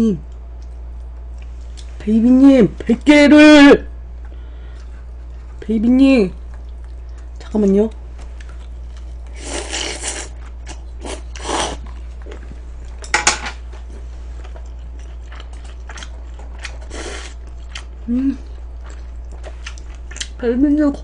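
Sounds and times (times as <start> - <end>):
steady low hum: 0.0 - 21.0
crunching and chewing: 6.4 - 20.4.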